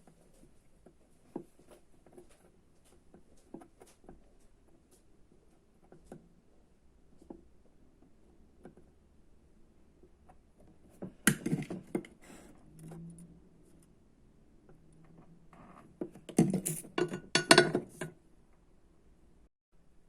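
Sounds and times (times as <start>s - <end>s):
hard objects clinking and rattling: 16.2s - 18.1s.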